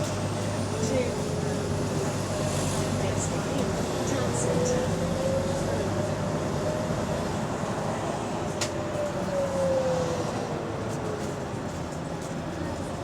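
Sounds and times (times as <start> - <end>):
bus engine rumble: 0.0 - 13.0.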